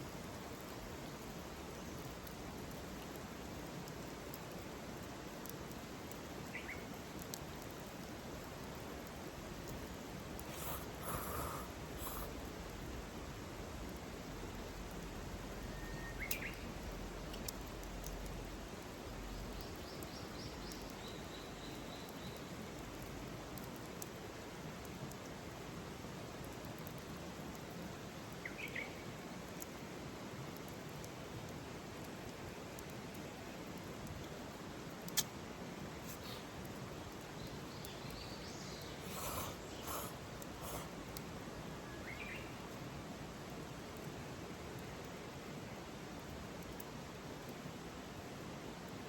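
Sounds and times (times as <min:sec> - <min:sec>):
steady outdoor hiss: 0:00.0 - 0:49.0
wild birds calling: 0:10.4 - 0:12.3, 0:38.6 - 0:41.2.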